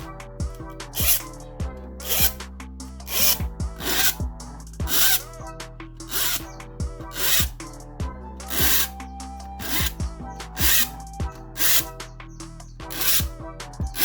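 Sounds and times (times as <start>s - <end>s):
background music: 0.0s - 14.0s
hand saw cutting wood: 0.9s - 1.4s, 2.0s - 2.4s, 3.0s - 5.4s, 6.1s - 7.7s, 8.4s - 9.0s, 9.6s - 12.1s, 12.9s - 14.0s.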